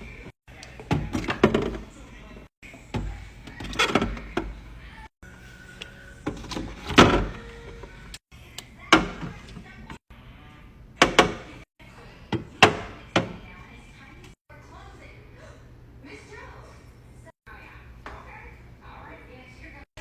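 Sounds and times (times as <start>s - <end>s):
containers knocking and clattering: 0.8s - 1.9s.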